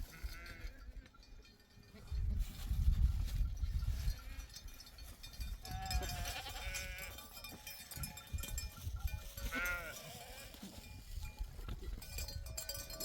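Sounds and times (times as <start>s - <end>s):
sheep bleating: 0.1s - 0.9s, 5.6s - 7.2s, 9.4s - 10.7s.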